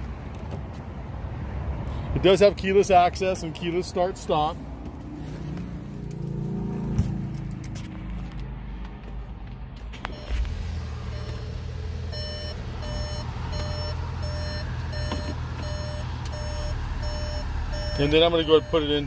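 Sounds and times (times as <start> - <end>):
car engine starting and idling: 4.9 - 19.0
electronic warning beeps: 10.1 - 10.5, 11.1 - 19.0.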